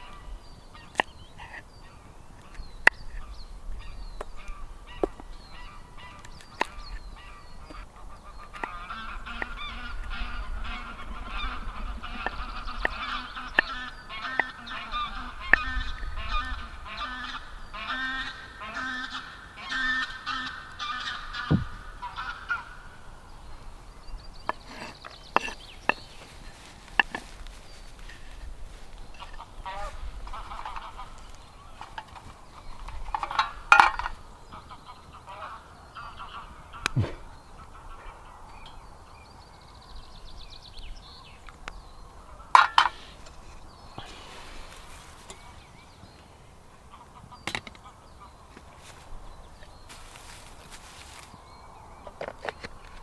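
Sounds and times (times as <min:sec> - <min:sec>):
flock of birds calling: 0:00.0 - 0:39.2.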